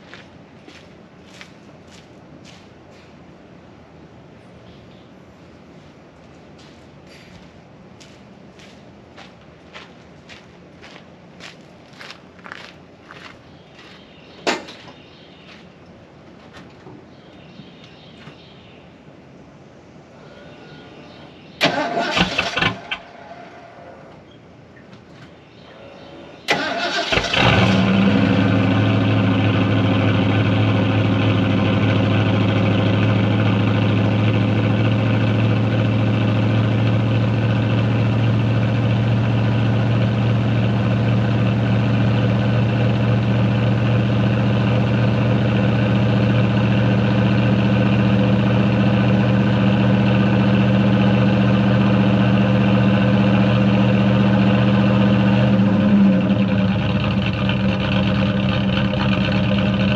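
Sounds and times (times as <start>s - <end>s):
pickup engine starting and idling: 21.6s - 23.2s, 26.4s - 59.9s.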